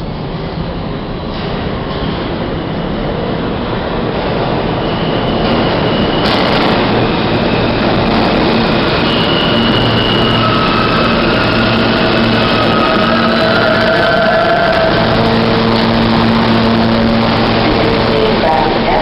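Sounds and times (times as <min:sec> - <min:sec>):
subway train rumbling roar: 0:00.0 - 0:19.0
high whining tones: 0:04.4 - 0:19.0.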